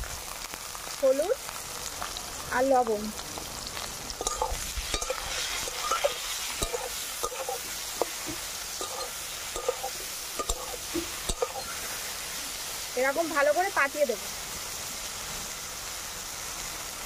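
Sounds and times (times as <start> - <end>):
vegetables sizzling in oil: 0.0 - 17.0
spatula scraping a metal pan: 4.2 - 11.9.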